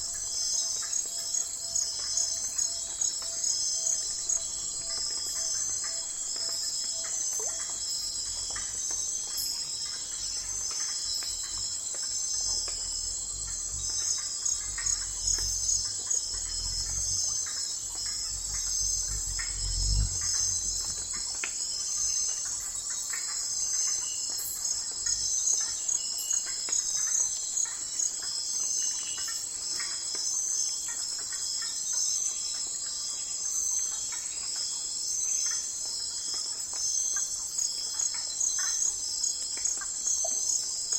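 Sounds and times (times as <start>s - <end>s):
insects trilling: 0.0s - 40.9s
pulsing insect calls: 0.0s - 40.9s
low rumble: 12.5s - 21.4s.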